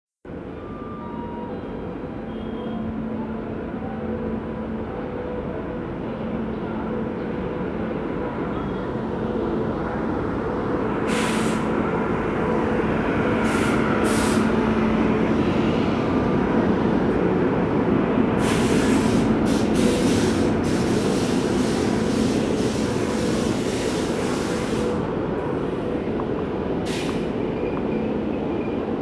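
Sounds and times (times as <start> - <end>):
train low hum: 0.3 - 29.0
short hisses of air: 11.1 - 11.7, 18.4 - 25.0, 26.9 - 27.3.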